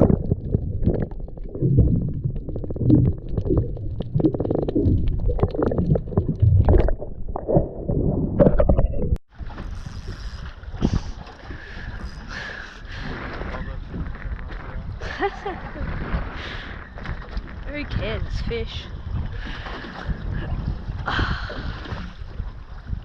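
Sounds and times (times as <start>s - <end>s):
underwater sloshing and gurgling: 0.0s - 23.0s
wind on microphone: 6.4s - 23.0s.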